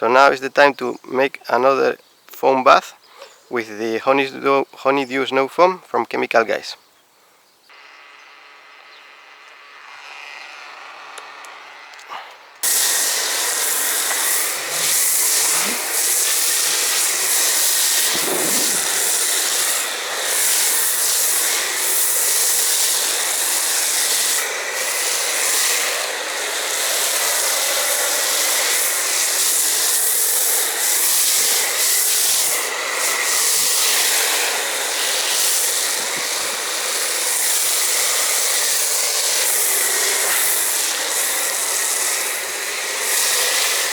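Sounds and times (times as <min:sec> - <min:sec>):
pressure washer spray hissing: 0:12.6 - 0:43.9.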